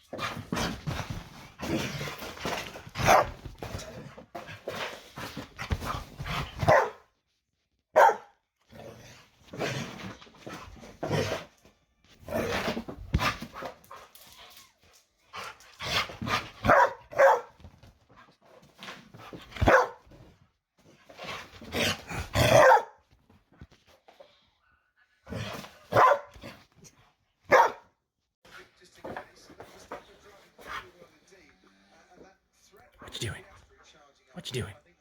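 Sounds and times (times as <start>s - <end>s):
dog barking: 3.0s - 3.4s, 6.6s - 7.1s, 7.9s - 8.4s, 16.6s - 17.6s, 19.6s - 20.1s, 22.4s - 23.0s, 25.9s - 26.4s, 27.5s - 27.9s.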